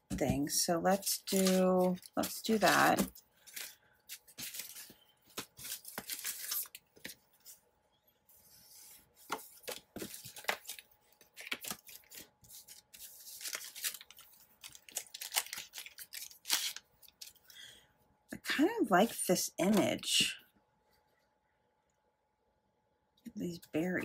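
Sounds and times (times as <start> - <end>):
paper rustling: 1.1 - 7.6, 8.4 - 17.4.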